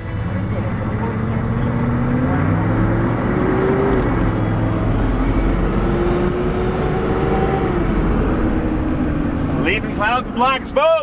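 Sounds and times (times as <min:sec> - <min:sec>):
turbocharged car engine droning: 0:00.0 - 0:11.0.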